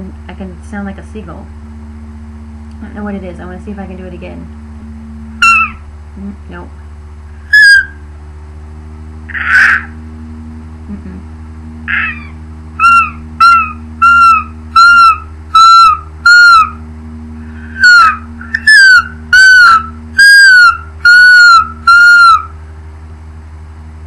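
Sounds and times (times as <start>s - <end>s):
low hum: 0.0s - 24.0s
woman imitating seagull calls: 5.4s - 6.4s, 9.3s - 10.0s, 11.9s - 16.8s, 17.8s - 22.4s.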